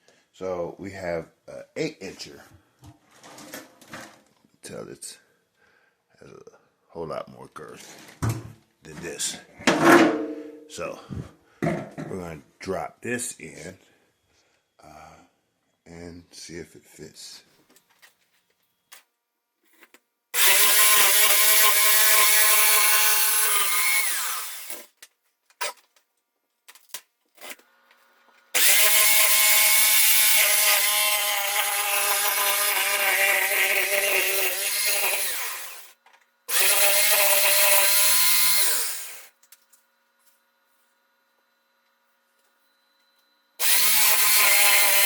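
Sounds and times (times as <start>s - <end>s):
electric power saw cutting: 20.4s - 24.9s, 28.5s - 39.3s, 43.6s - 45.0s.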